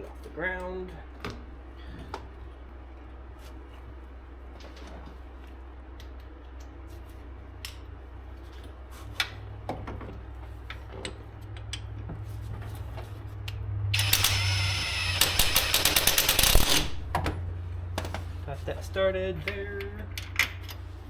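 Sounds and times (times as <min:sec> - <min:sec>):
steady low hum: 0:00.0 - 0:21.0
power tool running bolt in: 0:13.9 - 0:17.1.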